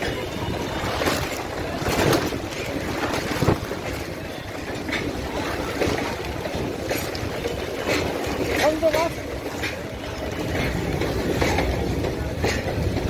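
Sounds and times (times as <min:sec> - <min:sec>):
wheels rumbling on rail: 0:00.0 - 0:13.0
sharp wheel clacks: 0:01.0 - 0:13.0.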